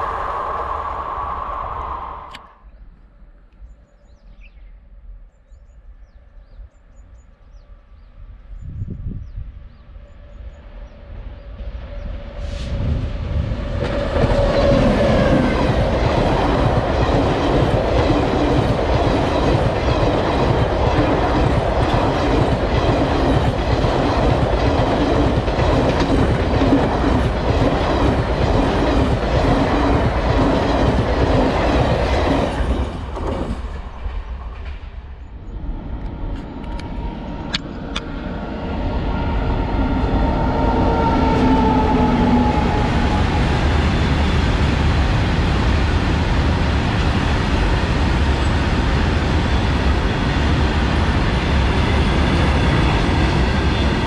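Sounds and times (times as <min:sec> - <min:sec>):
locomotive whine: 0:00.0 - 0:04.0, 0:10.1 - 0:54.0
train coaches rushing by: 0:11.9 - 0:54.0.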